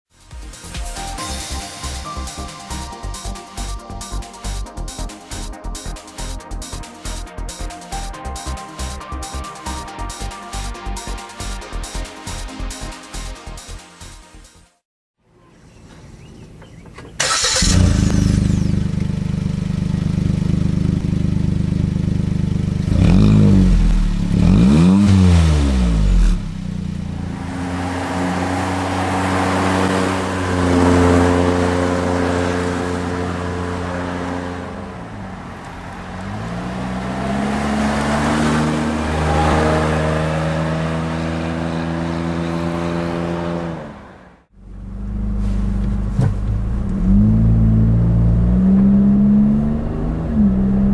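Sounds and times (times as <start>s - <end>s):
car engine revving: 17.2s - 50.9s.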